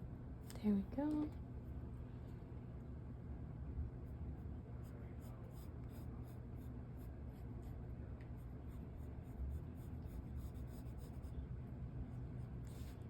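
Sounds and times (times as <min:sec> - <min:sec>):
low steady hum: 0:00.0 - 0:13.0
pencil scratching on paper: 0:04.8 - 0:11.3, 0:12.1 - 0:13.0.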